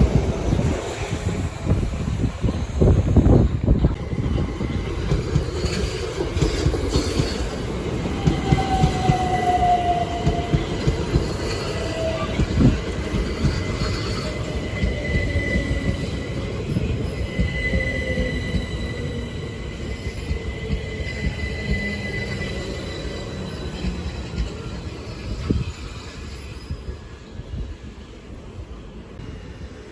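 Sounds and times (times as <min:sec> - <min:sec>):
train wheels rumbling on rails: 0:00.0 - 0:29.9
wheel squeals: 0:05.4 - 0:27.2.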